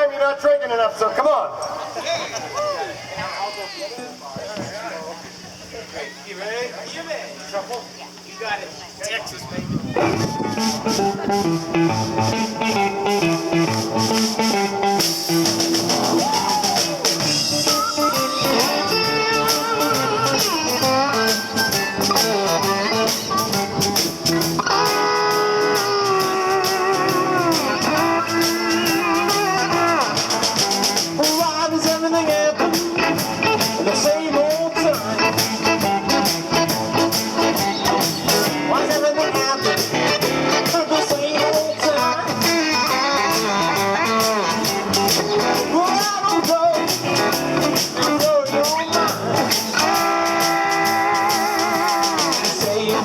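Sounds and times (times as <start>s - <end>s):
guitar lead with bent notes: 9.6s - 53.0s
blues band playing: 9.8s - 53.0s.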